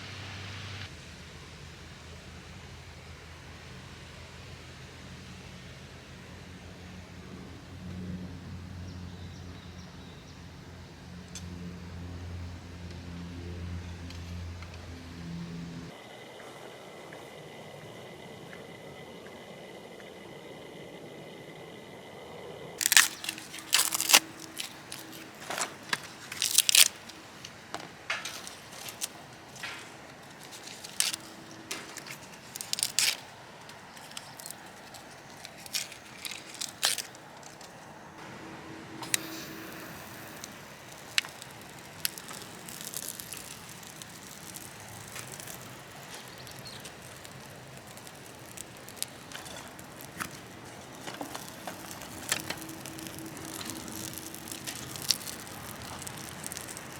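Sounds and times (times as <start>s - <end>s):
crackles and rustles of handling: 22.8s - 38.4s, 39.0s - 56.9s.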